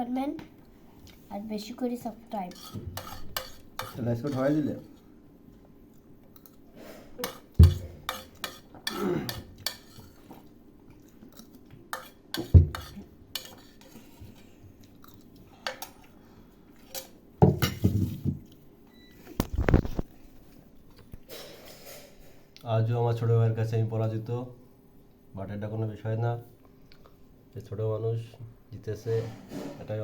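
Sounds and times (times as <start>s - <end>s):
cutlery knocking on a plate: 7.2s - 9.8s, 17.4s - 18.4s.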